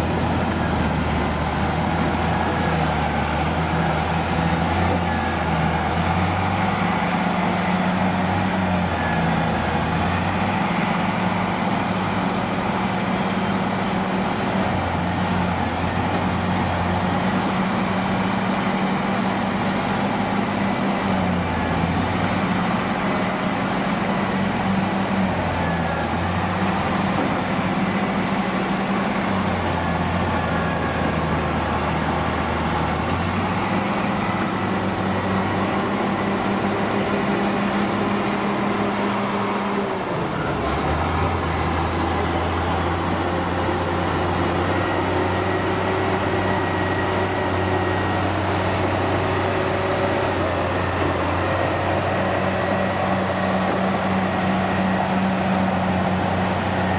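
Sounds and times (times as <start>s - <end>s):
diesel engines running: 0.0s - 56.9s.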